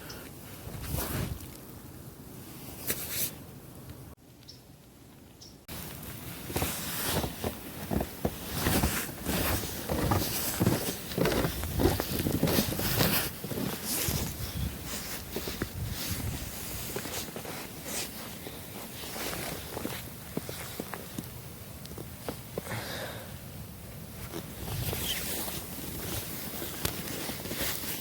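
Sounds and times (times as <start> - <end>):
footsteps crunching through snow: 0.4 - 1.6, 5.7 - 21.3, 24.2 - 28.0.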